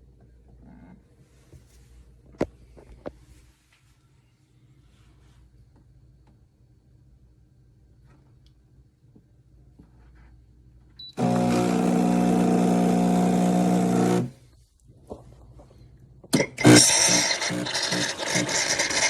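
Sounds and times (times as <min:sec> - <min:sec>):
coffee machine motor humming: 0:11.1 - 0:14.4, 0:16.4 - 0:19.0.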